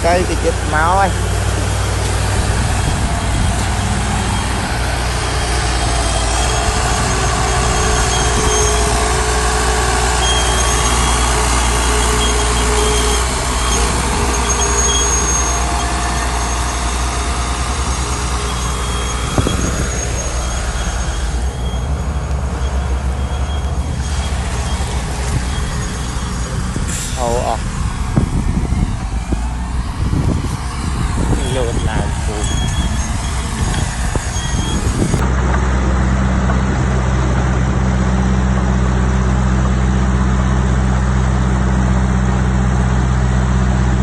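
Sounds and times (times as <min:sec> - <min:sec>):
diesel machinery engine drone: 0:00.0 - 0:44.0
faint high-pitched squeals: 0:09.9 - 0:17.0.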